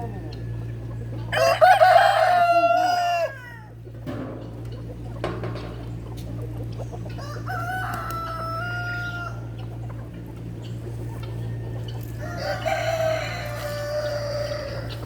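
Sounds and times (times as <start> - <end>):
steady low hum: 0.0 - 15.0
rooster crowing: 1.3 - 3.8, 7.2 - 9.6, 11.4 - 15.0.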